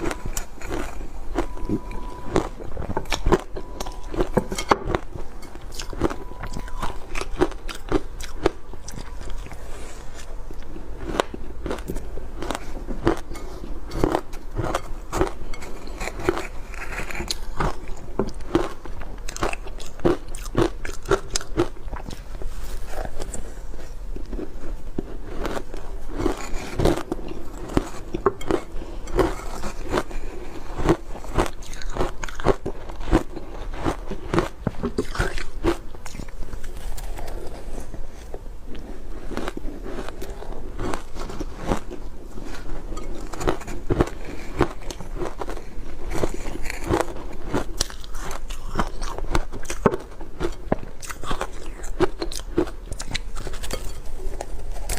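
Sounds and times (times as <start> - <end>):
person crunching ice: 11.0 - 22.2, 24.2 - 54.9.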